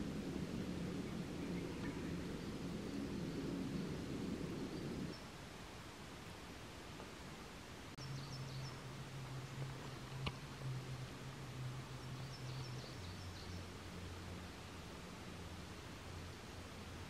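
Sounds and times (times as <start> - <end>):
low steady hum: 0.0 - 17.0
small bird chirping: 12.0 - 13.7.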